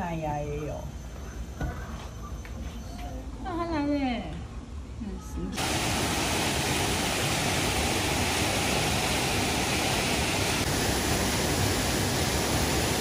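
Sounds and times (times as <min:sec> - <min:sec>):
water rushing: 0:05.6 - 0:13.0.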